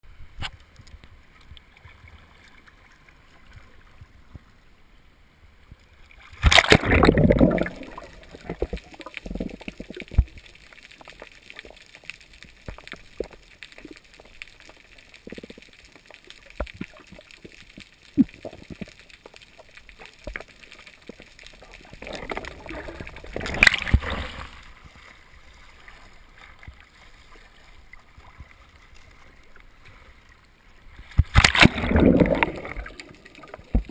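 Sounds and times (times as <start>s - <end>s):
gurgling water: 6.0s - 33.9s
water splashing around kayak: 6.0s - 33.9s
loud splash: 6.4s - 8.6s, 31.2s - 33.3s.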